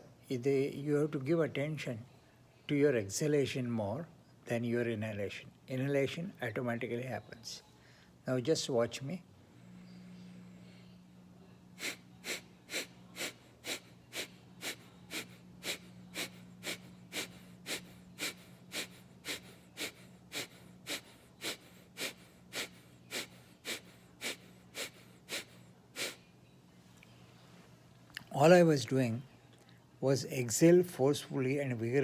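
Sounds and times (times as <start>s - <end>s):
man's forceful nasal exhalations: 11.8s - 26.2s.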